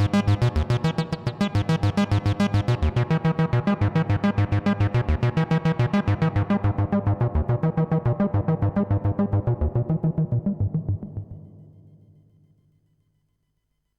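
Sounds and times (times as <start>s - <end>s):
bass synthesizer note sequence: 1.6s - 11.5s.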